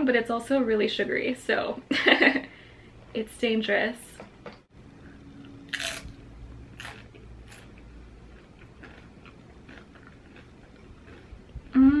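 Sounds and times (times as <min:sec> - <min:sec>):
chewing crunchy chips: 0:05.7 - 0:11.8.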